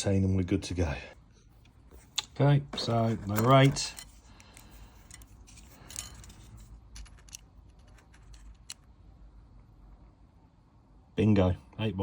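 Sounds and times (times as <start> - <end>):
metallic clicks and clinks: 3.1 - 8.9.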